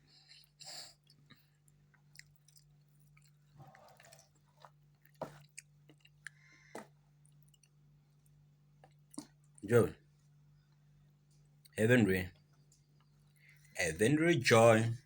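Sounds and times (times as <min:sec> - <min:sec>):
child chewing food: 0:00.0 - 0:09.6, 0:12.4 - 0:13.8
low steady hum: 0:00.0 - 0:15.0.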